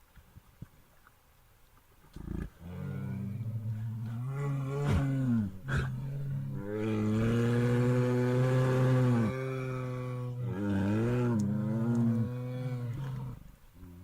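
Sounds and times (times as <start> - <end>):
bear roaring: 2.3 - 13.5.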